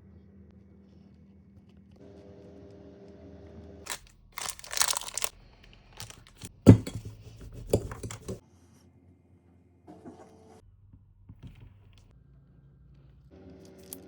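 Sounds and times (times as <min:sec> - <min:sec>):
crinkling rustling handling: 0:03.9 - 0:08.4.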